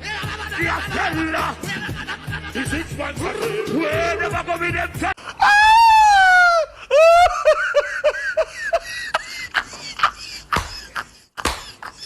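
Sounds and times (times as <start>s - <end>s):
high-pitched laugh: 6.9s - 12.0s.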